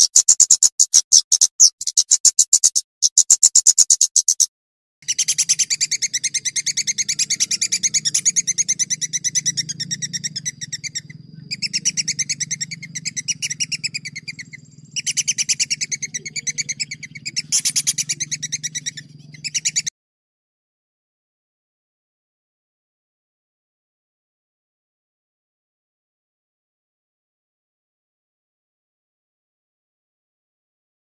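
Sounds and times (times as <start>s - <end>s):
songbird trilling: 0.0s - 19.9s
low hum: 5.4s - 19.5s.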